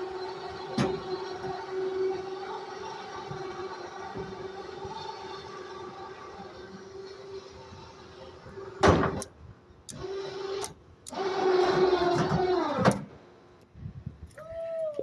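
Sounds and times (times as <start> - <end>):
electric motor whirring: 9.9 - 12.9.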